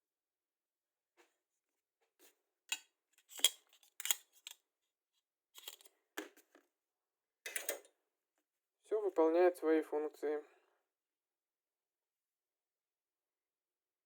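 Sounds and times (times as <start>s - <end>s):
metal tools clicking on parts tray: 7.5s - 7.9s.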